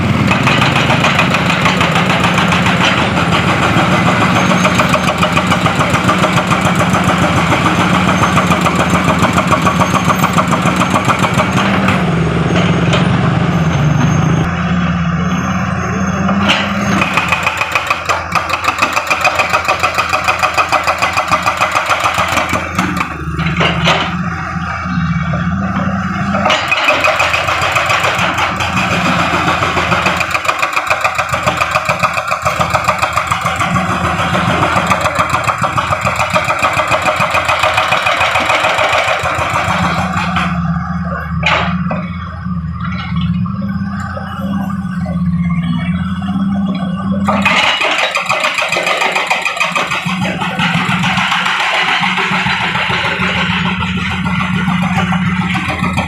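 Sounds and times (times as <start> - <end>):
diesel engine running: 0.0 - 56.0
hydraulic breaker hammering: 0.1 - 13.1, 16.5 - 24.2, 26.3 - 40.6, 47.2 - 56.0.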